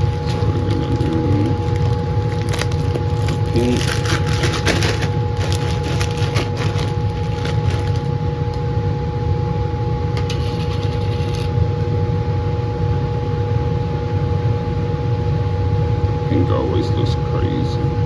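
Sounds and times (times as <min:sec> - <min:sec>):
handling rustles and clicks: 0:00.0 - 0:08.2, 0:10.2 - 0:11.5
blower fan running: 0:00.0 - 0:18.0.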